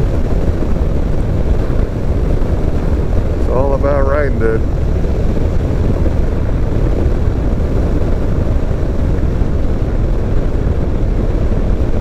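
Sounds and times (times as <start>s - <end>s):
wind noise: 0.0s - 12.0s.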